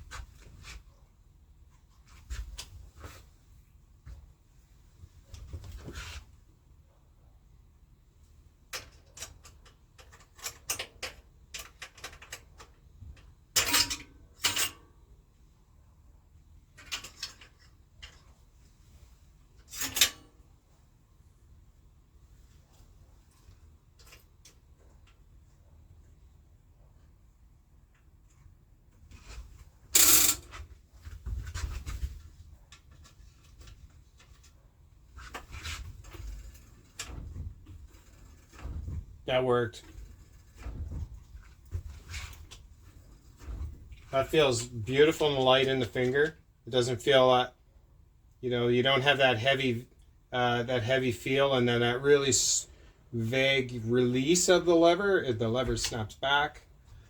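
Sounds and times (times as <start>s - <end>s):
bike parts rustling and clicking: 27.9s - 39.1s
small metal parts clicking: 30.0s - 30.6s.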